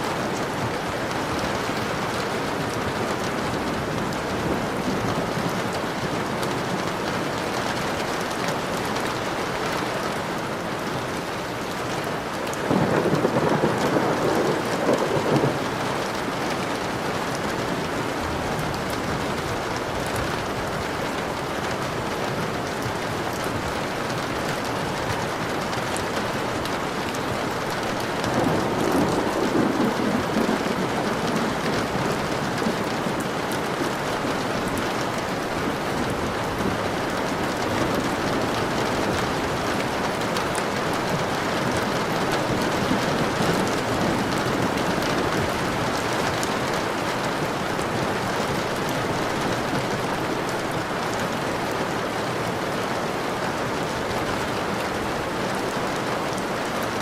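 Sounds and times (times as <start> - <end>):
heavy rainfall: 0.0 - 57.0
thunder rumble: 12.6 - 15.7, 27.5 - 34.1.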